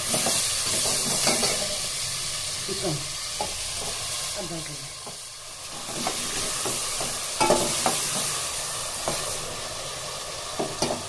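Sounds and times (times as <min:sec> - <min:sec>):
chicken frying in oil: 0:00.0 - 0:11.0.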